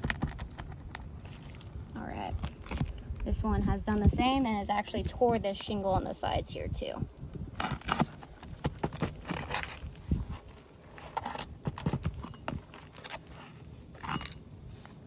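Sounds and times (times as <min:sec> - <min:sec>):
roof snake prying shingles: 0:07.5 - 0:14.4.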